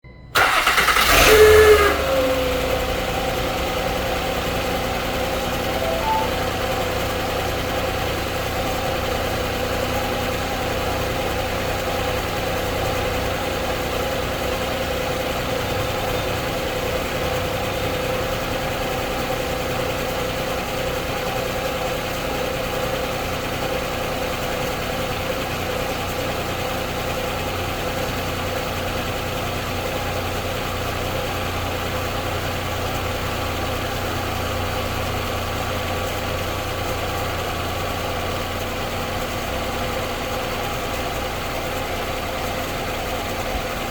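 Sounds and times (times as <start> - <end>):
car engine idling: 0.3 - 43.9
steady engine whine: 0.6 - 21.5.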